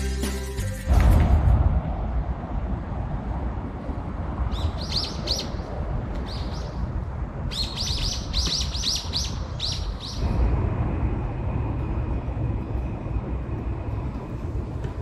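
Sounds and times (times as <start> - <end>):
steady low rumble: 0.5 - 15.0
small songbird chirping: 4.5 - 5.6, 6.2 - 6.8, 7.5 - 10.3.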